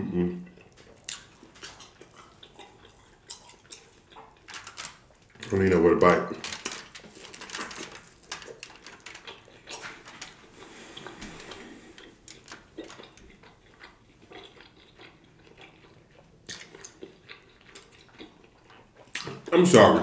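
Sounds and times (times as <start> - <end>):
man chewing meat: 0.3 - 5.6, 6.3 - 19.9
mouth clicks and smacks: 0.4 - 5.5, 9.2 - 19.6.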